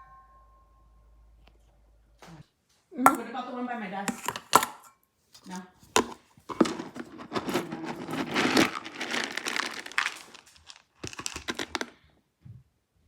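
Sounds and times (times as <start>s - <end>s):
dog food bag crinkling: 5.4s - 12.0s.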